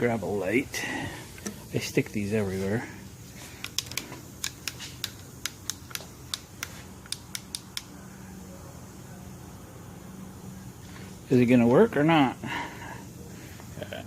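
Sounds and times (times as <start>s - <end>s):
work light switch clicking: 3.6s - 7.9s.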